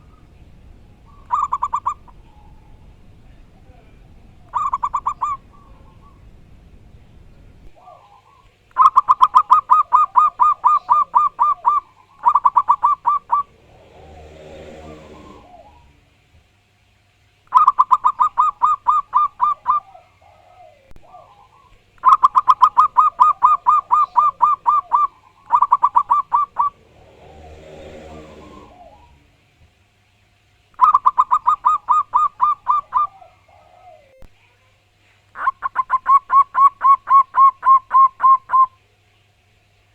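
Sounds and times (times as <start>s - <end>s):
dove cooing: 0.0s - 16.2s, 17.5s - 29.4s, 30.8s - 34.3s, 35.4s - 38.8s
soft low sound: 12.4s - 16.2s, 25.5s - 29.6s.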